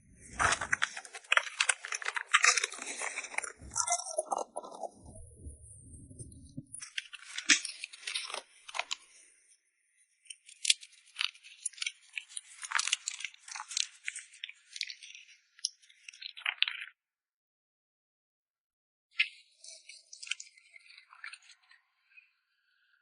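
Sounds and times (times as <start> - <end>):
dog crunching food: 0.4 - 4.7.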